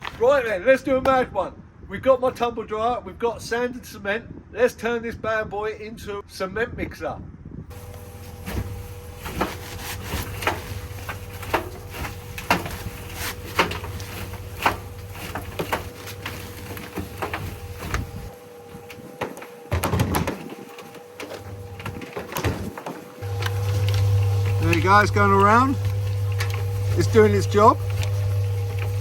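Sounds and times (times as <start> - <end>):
knocks and clicks of tumbling mix: 7.7 - 29.0
tumble dryer motor hum: 7.7 - 29.0.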